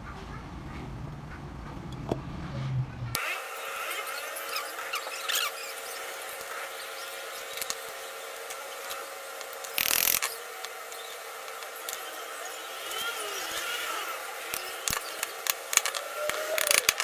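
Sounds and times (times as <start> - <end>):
steady hum: 0.0 - 17.0
squeaky rubbing on metal: 3.2 - 17.0
small clicks: 4.1 - 17.0.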